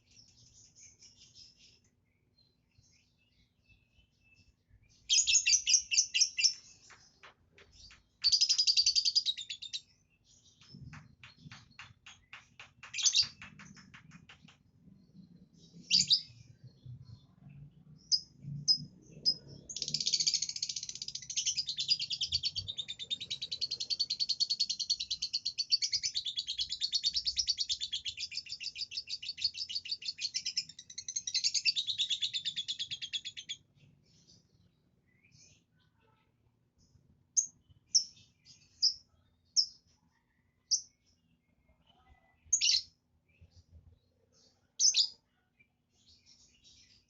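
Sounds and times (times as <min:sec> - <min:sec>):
lovebird chirping and chattering: 0:05.0 - 0:17.4, 0:18.0 - 0:33.6, 0:42.5 - 0:42.9, 0:44.8 - 0:45.2.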